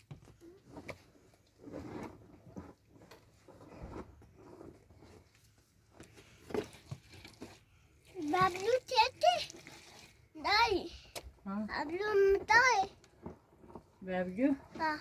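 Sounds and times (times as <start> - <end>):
crunching and rustling: 0.0 - 8.8.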